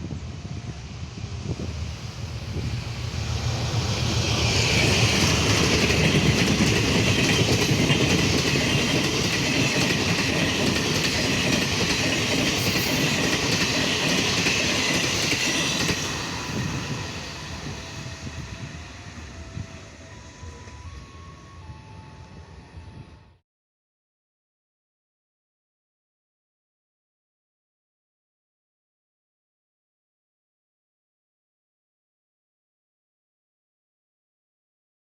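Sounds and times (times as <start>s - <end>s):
train wheels clattering on rails: 2.4s - 18.8s.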